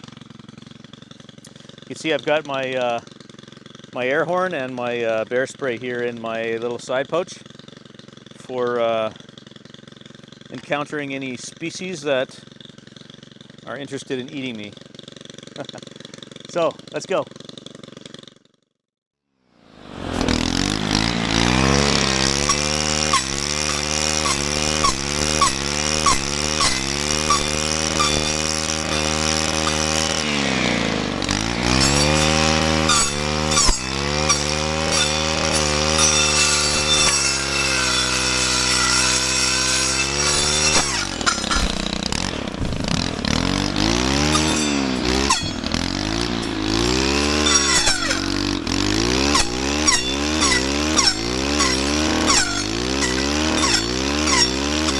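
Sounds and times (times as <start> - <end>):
atv engine revving: 19.8 - 54.9.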